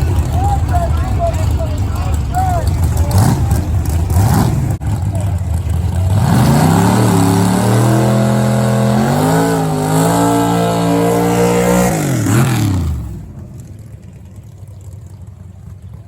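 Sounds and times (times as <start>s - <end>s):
drag racing car engine: 0.0s - 16.0s.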